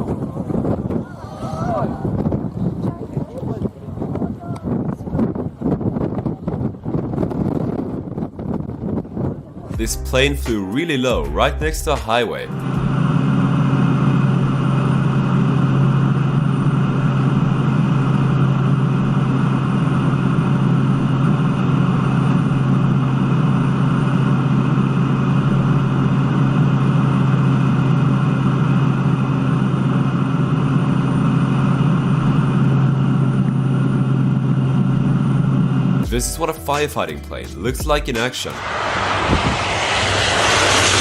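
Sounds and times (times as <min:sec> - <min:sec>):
engine drone with low hum: 0:11.2 - 0:38.0, 0:38.6 - 0:41.0.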